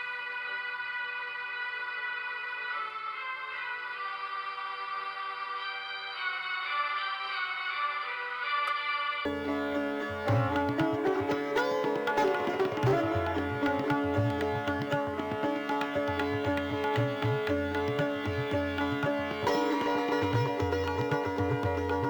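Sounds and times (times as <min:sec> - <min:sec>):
plucked string melody: 0:09.3 - 0:22.0.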